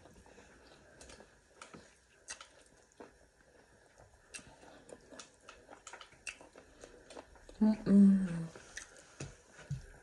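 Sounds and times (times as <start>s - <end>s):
person chewing: 0.0s - 7.6s, 8.5s - 10.0s.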